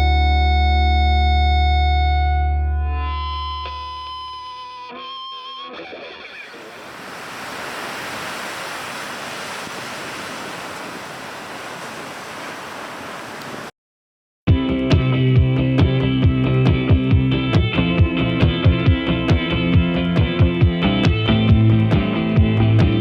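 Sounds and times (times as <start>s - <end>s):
ocean surf rushing: 6.3s - 13.7s.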